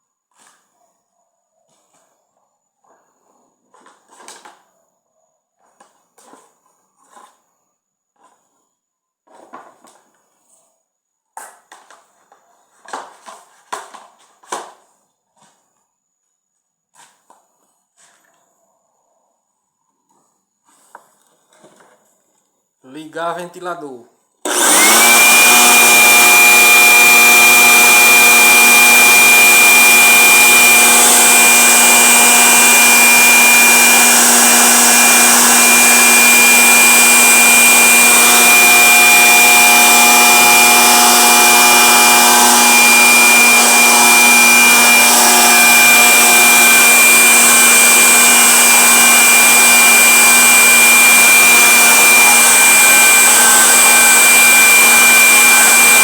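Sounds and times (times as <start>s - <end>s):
electric fan motor whine: 24.5s - 56.0s.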